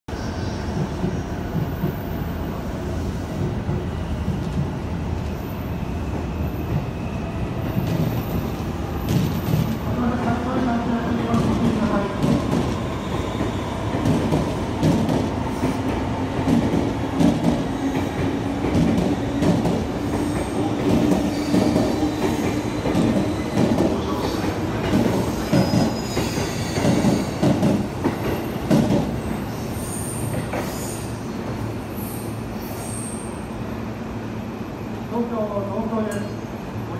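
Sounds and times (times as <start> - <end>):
train rumble and hum: 0.1 - 36.9
train wheels clacking on rails: 7.7 - 9.8, 11.1 - 29.3.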